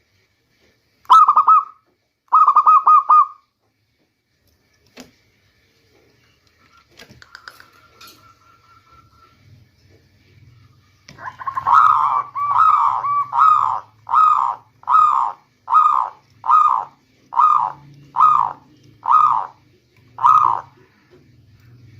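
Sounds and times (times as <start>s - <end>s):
dove cooing: 2.3s - 3.4s, 11.1s - 19.6s, 20.2s - 21.0s.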